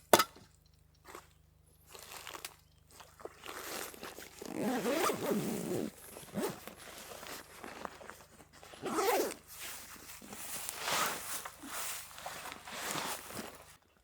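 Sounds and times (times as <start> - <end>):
zipper being pulled: 4.3 - 6.8, 8.8 - 9.5
fabric rustling: 4.4 - 13.8.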